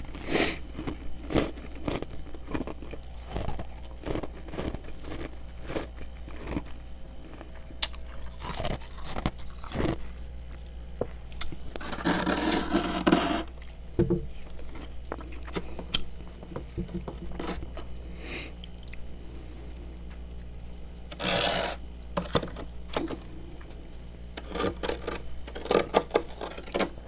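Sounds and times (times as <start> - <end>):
chewing frost crunches: 0.0 - 12.1
dense scraping: 11.7 - 13.5.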